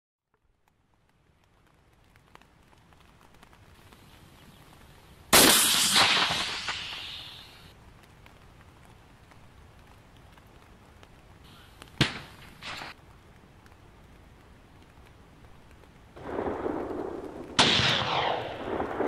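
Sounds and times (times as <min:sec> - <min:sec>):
sharp cracks: 0:00.6 - 0:19.0
loud blast: 0:05.4 - 0:07.4, 0:17.6 - 0:19.0.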